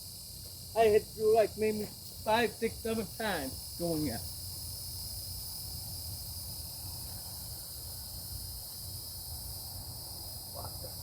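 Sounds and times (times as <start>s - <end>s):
high-pitched hiss: 0.0s - 11.0s.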